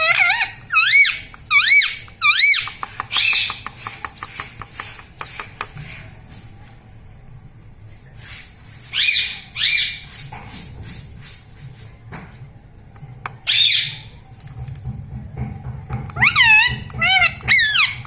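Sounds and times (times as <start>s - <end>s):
parrot squawking: 0.0s - 3.6s, 13.4s - 14.1s, 16.2s - 18.0s.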